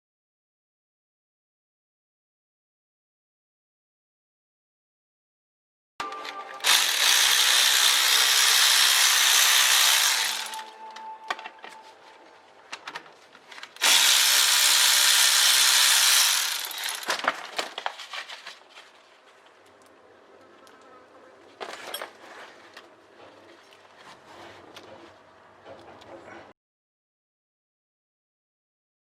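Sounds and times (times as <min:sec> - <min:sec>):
power tool running: 0:06.2 - 0:10.9, 0:13.8 - 0:17.3.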